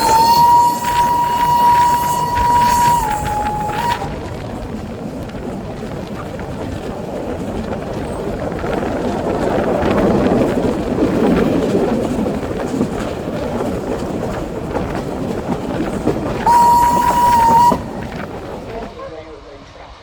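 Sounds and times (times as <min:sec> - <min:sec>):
train whistle blast: 0:00.0 - 0:04.1, 0:16.4 - 0:18.3
wheels clicking over rail joints: 0:00.0 - 0:19.0
train rumble: 0:00.0 - 0:20.0.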